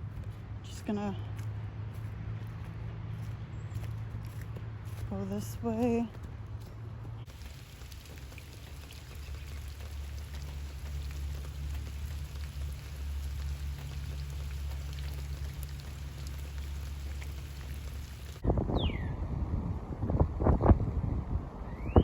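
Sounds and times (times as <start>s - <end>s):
wind rumble on microphone: 5.8s - 22.0s.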